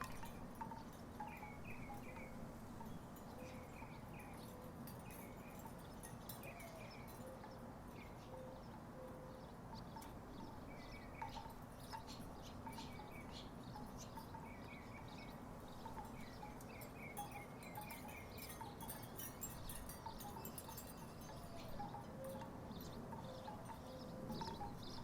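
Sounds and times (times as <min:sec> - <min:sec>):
wooden wind chimes knocking: 0:00.0 - 0:03.0, 0:15.7 - 0:25.0.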